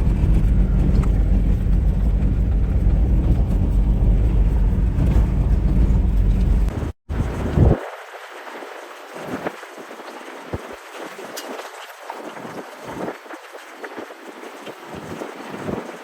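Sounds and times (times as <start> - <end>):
vehicle rumbling on dirt trail: 0.0 - 7.8.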